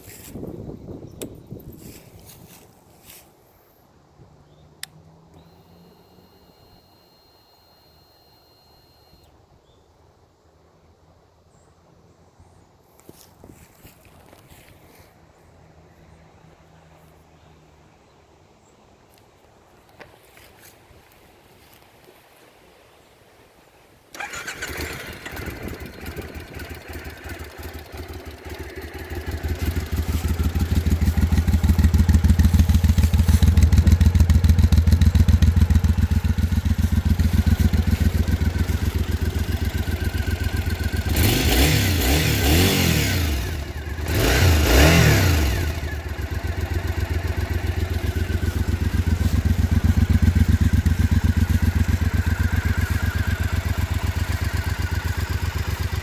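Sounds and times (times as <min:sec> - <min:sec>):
motorcycle engine starting and idling: 0:04.2 - 0:09.6, 0:24.1 - 0:56.0
motorcycle engine revving: 0:04.4 - 0:09.3, 0:24.2 - 0:56.0.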